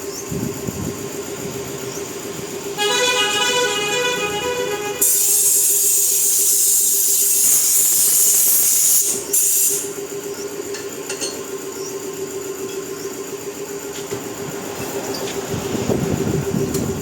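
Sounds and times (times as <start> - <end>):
machine humming: 0.0 - 6.1
high-pitched hiss of escaping air: 3.3 - 10.0.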